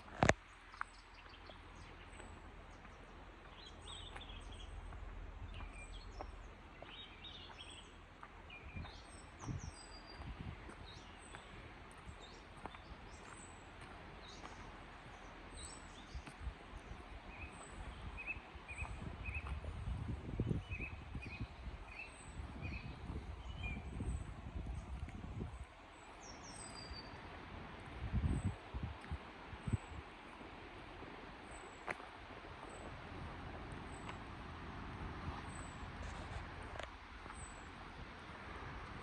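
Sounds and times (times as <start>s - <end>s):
birds chirping: 0.0s - 27.3s.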